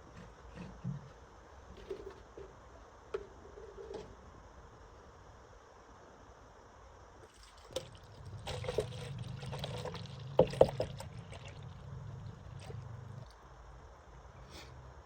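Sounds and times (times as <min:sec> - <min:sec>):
oil pouring into container: 0:07.3 - 0:13.3.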